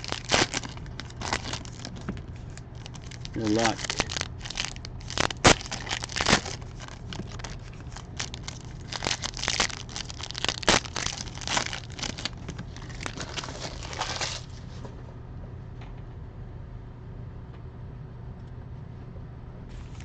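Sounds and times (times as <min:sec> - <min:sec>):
wrappers tearing and crinkling: 0:00.0 - 0:14.6
low steady hum: 0:00.0 - 0:20.0.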